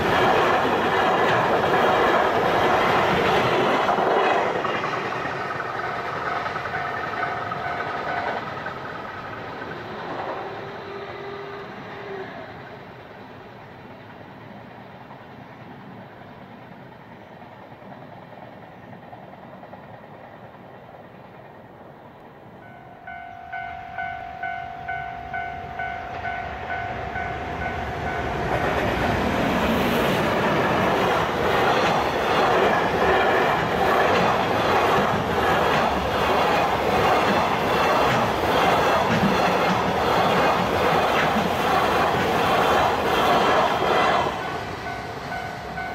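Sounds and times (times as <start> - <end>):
freight train passing: 0.0 - 45.9
ringing bell tone: 22.7 - 28.2
wheels clattering over rail joints: 28.1 - 45.0.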